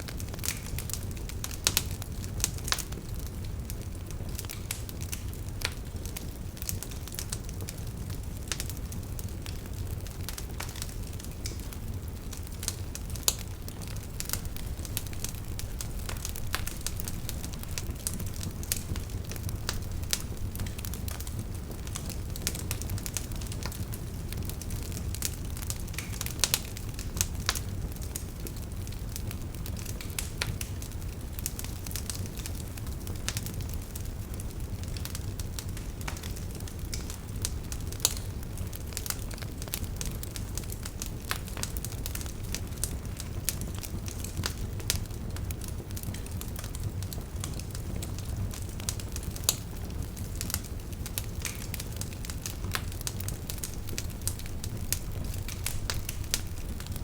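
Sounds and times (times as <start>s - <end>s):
fire rumbling: 0.0s - 57.0s
wood crackling and popping: 0.1s - 57.0s.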